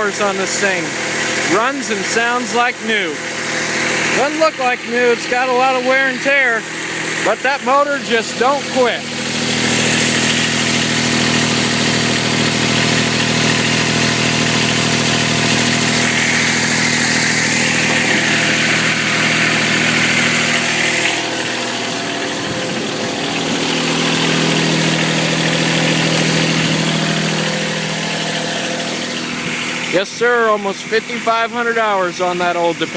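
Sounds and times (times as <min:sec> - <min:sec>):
tractor diesel engine running: 0:00.0 - 0:32.9.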